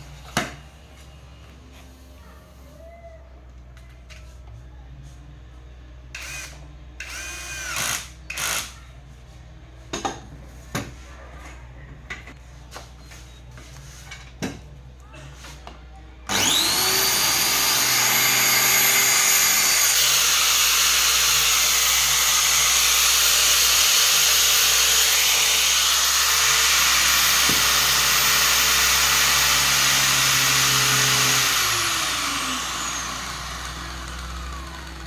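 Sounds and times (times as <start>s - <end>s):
angle grinder whining: 16.3s - 35.0s.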